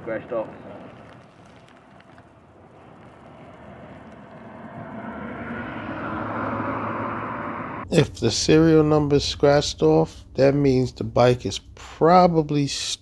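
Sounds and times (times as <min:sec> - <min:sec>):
passing vehicle engine: 0:02.8 - 0:12.6.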